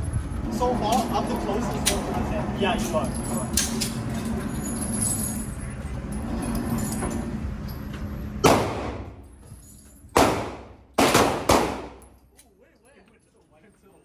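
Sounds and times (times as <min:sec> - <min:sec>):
gunshots with echo: 0:08.4 - 0:09.2, 0:10.2 - 0:12.2.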